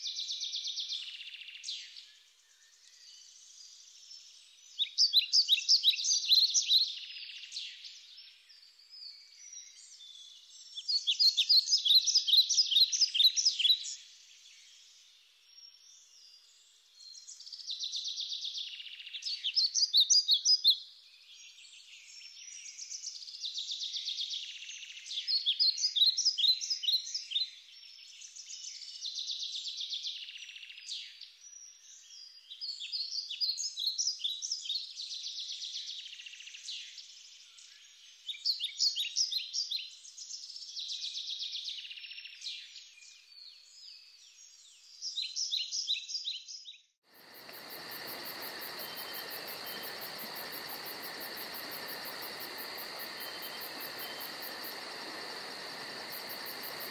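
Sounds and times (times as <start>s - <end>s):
songbird chirps and trills: 0.0s - 56.9s
insect chirring: 47.1s - 56.9s.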